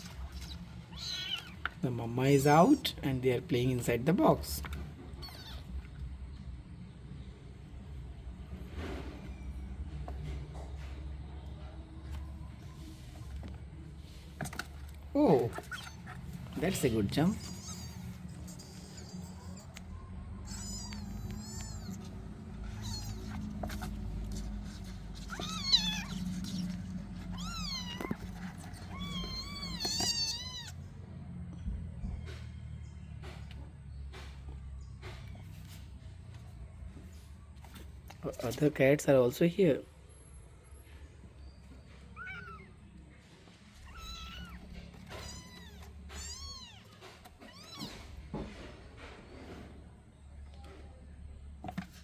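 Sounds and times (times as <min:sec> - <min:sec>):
kittens mewing: 0:00.0 - 0:01.8, 0:04.7 - 0:06.1, 0:14.5 - 0:30.9, 0:42.0 - 0:43.0, 0:43.6 - 0:48.2.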